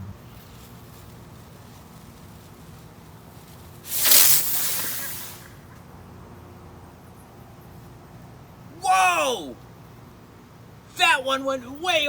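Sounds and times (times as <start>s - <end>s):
firework hissing: 3.5s - 5.8s.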